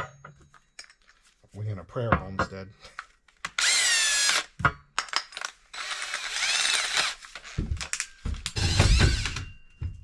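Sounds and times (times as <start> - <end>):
power drill motor: 3.5 - 4.5, 5.7 - 9.4.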